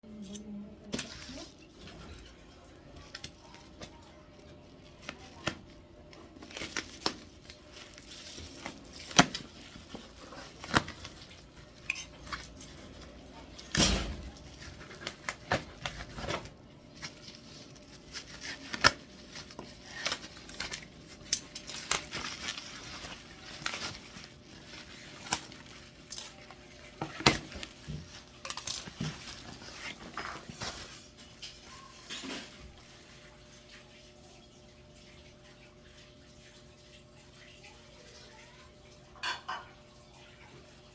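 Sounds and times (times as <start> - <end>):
packaging rustling and crinkling: 0.9 - 33.2.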